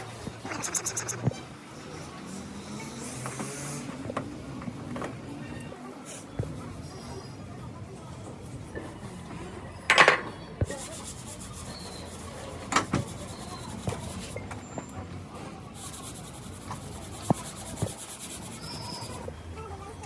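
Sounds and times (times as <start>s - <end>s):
rubbing and scraping: 15.8s - 19.3s.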